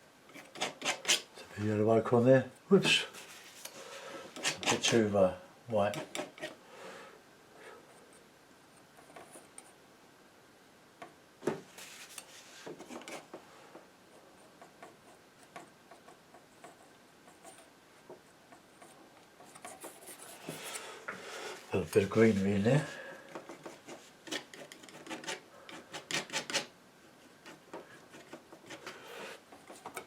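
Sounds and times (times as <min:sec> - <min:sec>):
painting knife scraping: 0:00.3 - 0:01.4, 0:03.1 - 0:05.1, 0:05.9 - 0:06.6, 0:18.8 - 0:20.9, 0:21.8 - 0:26.7, 0:27.4 - 0:30.0.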